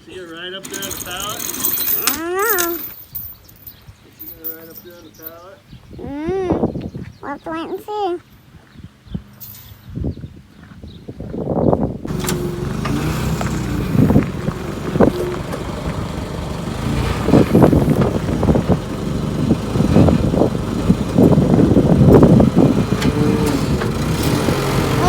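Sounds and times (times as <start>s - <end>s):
knocks and rattles: 0.6s - 3.8s, 12.1s - 25.0s
vehicle engine running under load: 12.0s - 25.0s.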